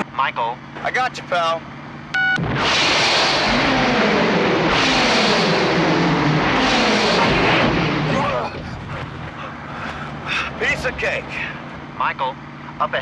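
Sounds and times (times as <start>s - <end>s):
vehicle engines running hard: 0.0s - 13.0s
loud rushing noise: 2.4s - 12.0s.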